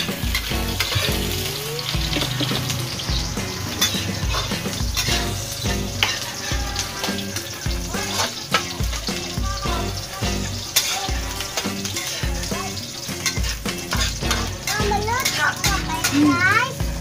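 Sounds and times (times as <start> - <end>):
metal utensil scraping pan: 0.0 - 16.9
background music with bass: 0.0 - 17.0
onions sizzling in a wok: 0.0 - 17.0.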